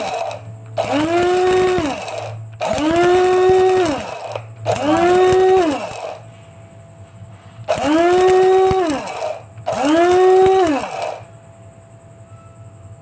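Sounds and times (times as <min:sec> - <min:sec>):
coffee grinder motor whir: 0:00.0 - 0:06.3, 0:07.7 - 0:11.3.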